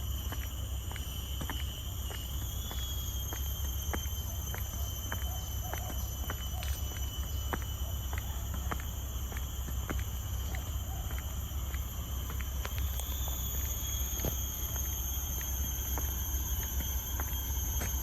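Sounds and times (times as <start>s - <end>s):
forest insects chorus: 0.0s - 18.0s.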